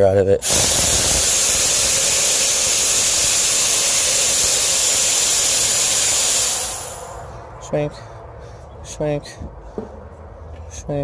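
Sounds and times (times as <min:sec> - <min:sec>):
gas hissing from hose valve: 0:00.4 - 0:07.3.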